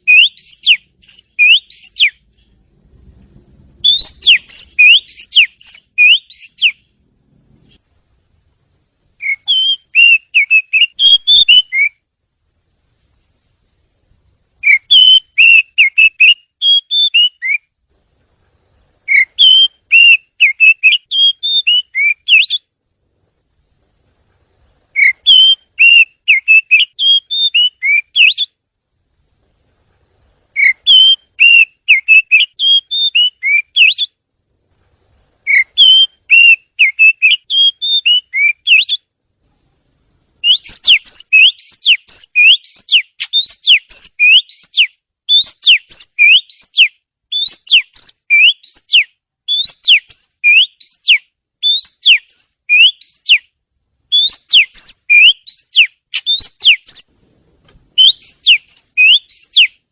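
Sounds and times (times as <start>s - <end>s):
bird singing whistled notes: 0.0s - 2.6s, 3.6s - 7.0s, 9.1s - 12.0s, 14.5s - 17.8s, 19.0s - 22.7s, 24.9s - 28.6s, 30.5s - 34.2s, 35.4s - 39.1s, 40.4s - 57.1s, 58.0s - 59.9s.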